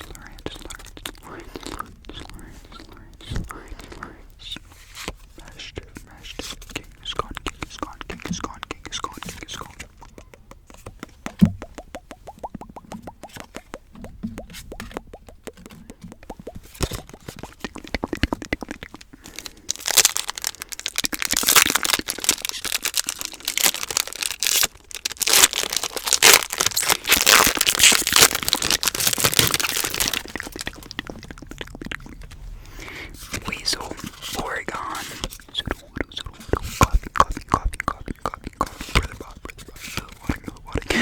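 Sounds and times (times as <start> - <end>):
light rapid clicking and tapping: 8.0 - 19.2
foil wrapper crinkling: 18.7 - 31.2.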